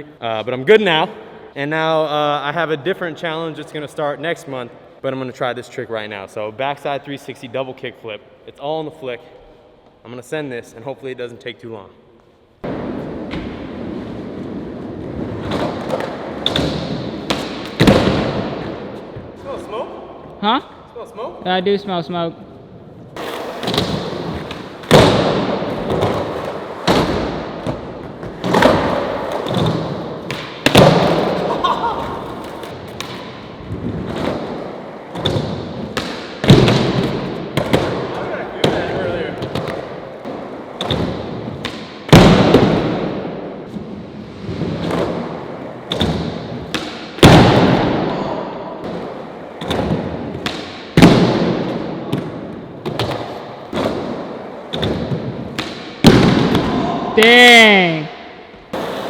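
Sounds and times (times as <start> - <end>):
skateboard impacts: 12.6 - 19.4, 23.2 - 57.3, 58.6 - 59.0
skateboard wheels rolling: 12.7 - 18.3, 23.1 - 41.7, 58.7 - 59.0.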